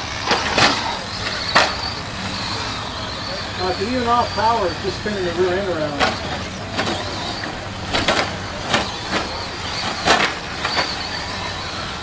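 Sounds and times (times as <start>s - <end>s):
radio-controlled trucks motor whine: 0.0s - 12.0s.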